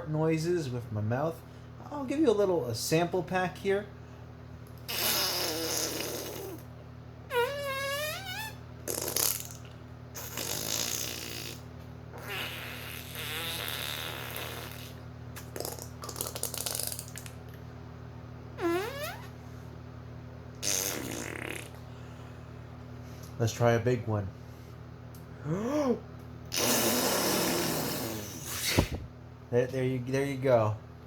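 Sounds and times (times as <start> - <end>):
mouth fart noises: 4.8 - 6.7, 7.3 - 17.4, 18.6 - 19.4, 20.5 - 22.2, 26.5 - 29.1.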